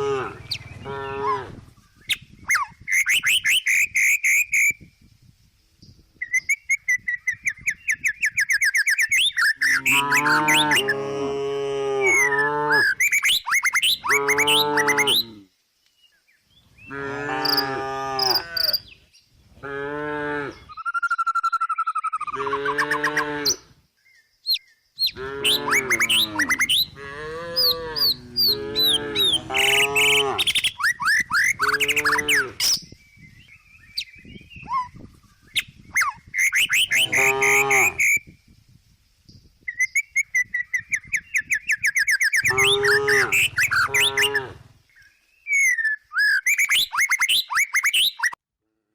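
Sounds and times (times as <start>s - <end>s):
cow mooing: 0.0s - 1.6s, 9.7s - 12.9s, 14.1s - 15.4s, 16.9s - 18.8s, 19.6s - 20.6s, 22.4s - 23.6s, 25.1s - 30.6s, 31.6s - 32.6s, 36.9s - 38.0s, 42.4s - 44.7s
bird chirps: 0.3s - 1.2s, 1.8s - 4.9s, 5.8s - 11.0s, 12.1s - 19.4s, 20.6s - 27.0s, 27.6s - 38.4s, 39.2s - 48.4s.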